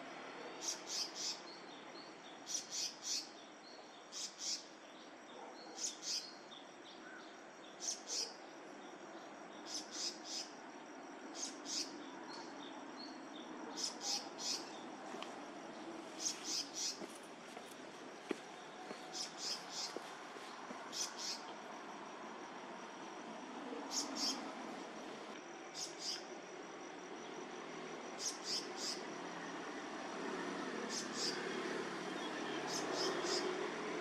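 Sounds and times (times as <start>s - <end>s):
steady background noise: 0.0s - 34.0s
small bird chirping: 0.6s - 4.8s, 5.4s - 6.5s, 7.1s - 8.4s, 9.6s - 10.6s, 11.4s - 14.9s, 16.2s - 17.8s, 18.6s - 20.1s, 20.9s - 21.5s, 23.9s - 24.4s, 25.7s - 26.3s, 28.2s - 29.0s, 30.9s - 31.4s, 32.1s - 33.5s.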